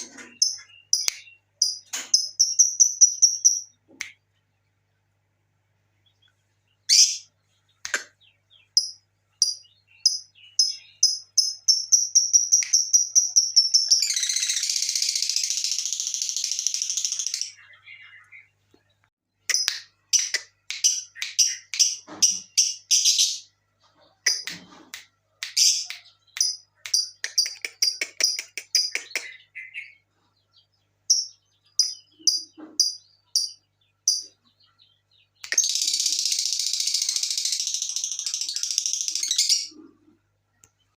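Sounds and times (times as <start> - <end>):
lovebird chirping and trilling: 0.0 - 3.8, 6.9 - 7.3, 8.3 - 18.5, 19.5 - 24.6, 31.1 - 39.9.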